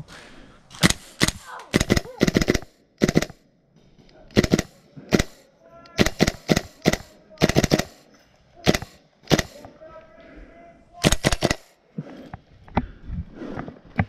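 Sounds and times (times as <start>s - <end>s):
airsoft gun firing bursts: 0.8s - 3.4s, 4.3s - 5.4s, 6.0s - 8.0s, 8.6s - 9.6s, 11.0s - 11.7s.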